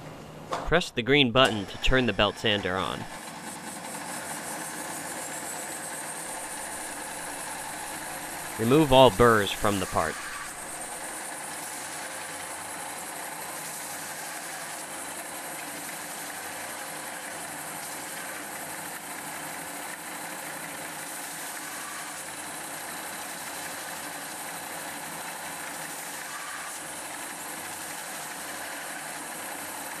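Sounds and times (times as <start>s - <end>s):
belt sander grinding: 2.8s - 12.0s.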